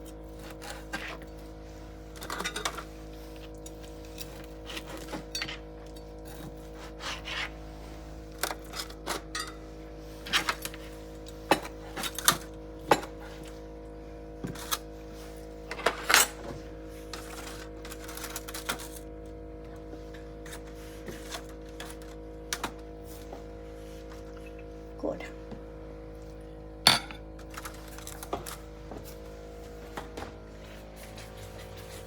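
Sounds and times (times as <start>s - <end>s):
steady hum: 0.0s - 32.0s
utensils clinking on cookware: 2.2s - 2.9s, 3.6s - 7.5s, 8.4s - 9.6s, 26.8s - 28.6s.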